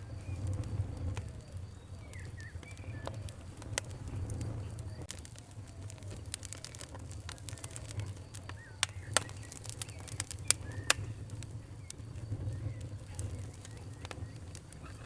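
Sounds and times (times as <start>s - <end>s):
sharp pops and snaps: 0.0s - 15.0s
wood fire crackling: 0.0s - 15.0s.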